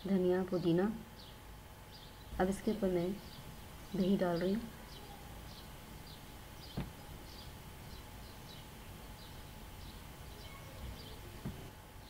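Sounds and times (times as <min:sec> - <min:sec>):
low steady hiss: 0:00.0 - 0:12.0
faint bird chirps: 0:03.2 - 0:11.7
soft knock: 0:06.7 - 0:07.0, 0:11.4 - 0:11.7.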